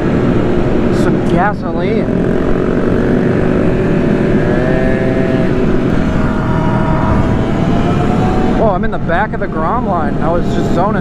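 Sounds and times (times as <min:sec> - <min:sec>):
motorbike engines cruising: 0:00.0 - 0:11.0
wind and road noise: 0:00.0 - 0:11.0.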